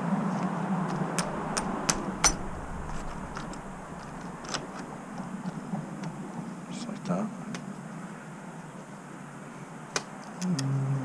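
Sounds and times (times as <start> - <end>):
steady background hum: 0.0 - 10.6
metallic clicks of tools and nuts: 0.9 - 4.9.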